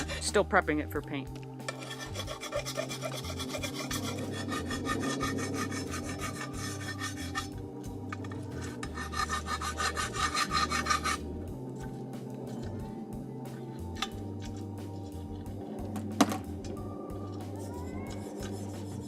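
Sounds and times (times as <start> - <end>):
hand file rasping on steel: 1.7 - 7.6, 8.2 - 11.2, 17.6 - 19.0.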